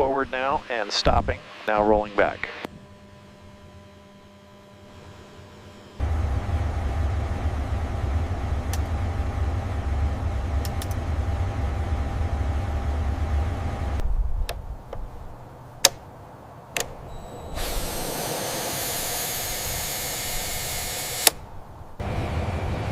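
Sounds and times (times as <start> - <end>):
jet engine rumbling and whining: 0.0 - 22.9
sharp clicks: 10.6 - 11.0, 15.8 - 16.0, 21.0 - 21.4.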